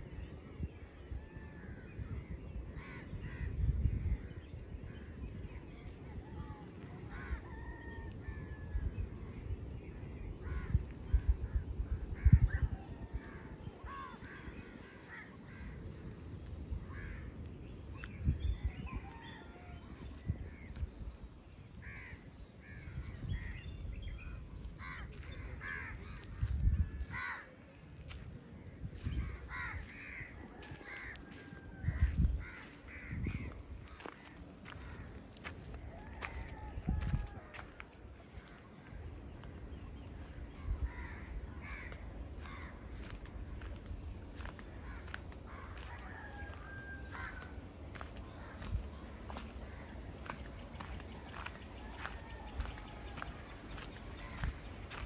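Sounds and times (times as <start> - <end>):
birds calling: 28.9 - 55.0.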